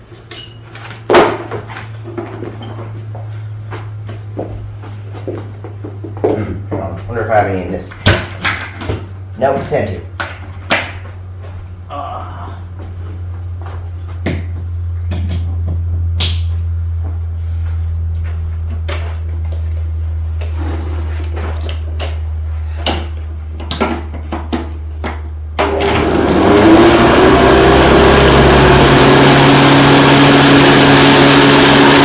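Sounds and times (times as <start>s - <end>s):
steady low hum: 0.0s - 25.7s
upright vacuum cleaner running: 25.6s - 32.0s.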